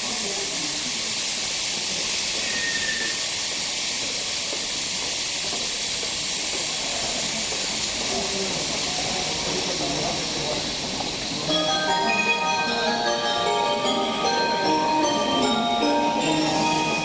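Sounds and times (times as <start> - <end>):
subway train running: 0.0 - 17.0.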